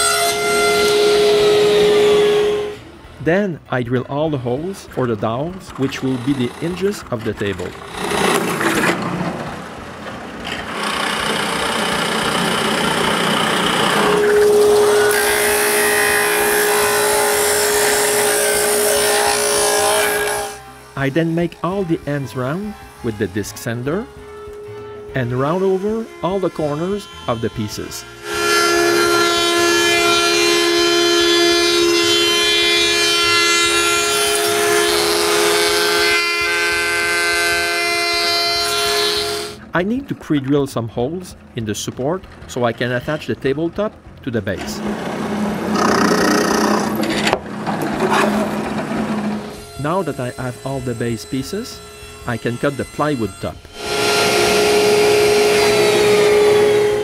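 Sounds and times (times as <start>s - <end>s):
power drill boring wood: 0.0s - 2.8s, 5.8s - 39.6s, 44.6s - 57.0s.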